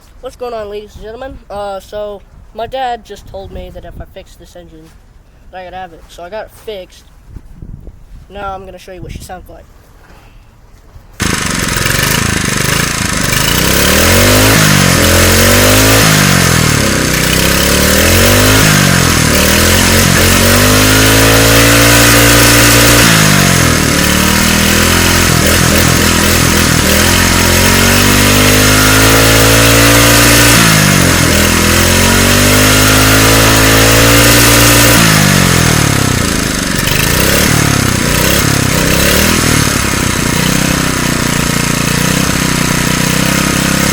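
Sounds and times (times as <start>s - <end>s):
engine revving: 11.2s - 43.9s.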